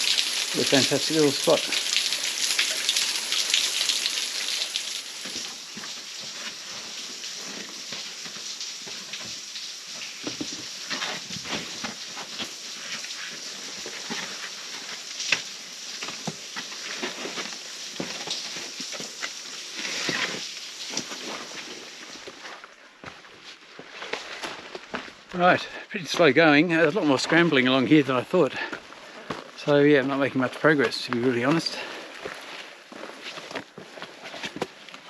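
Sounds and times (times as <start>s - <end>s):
small waterfall splashing: 0.0s - 22.4s
footsteps on rock: 28.6s - 29.6s.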